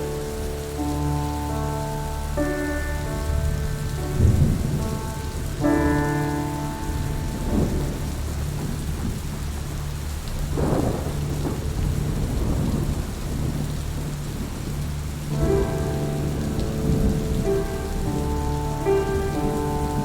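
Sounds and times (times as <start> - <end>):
soft held musical chord: 0.0 - 10.1, 15.1 - 20.0
low rumble of thunder: 0.0 - 20.0
steady rain falling: 0.0 - 20.0.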